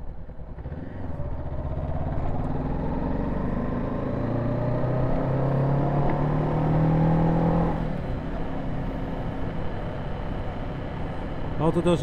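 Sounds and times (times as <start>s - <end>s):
road noise: 0.0s - 12.0s
motorcycle engine revving: 0.1s - 9.6s.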